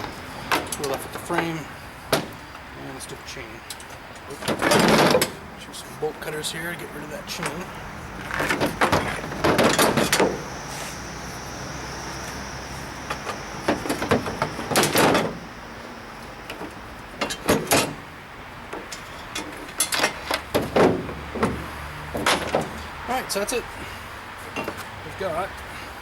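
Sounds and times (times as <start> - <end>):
bicycle chain clanking and rattling: 8.2 - 10.6, 18.7 - 22.9.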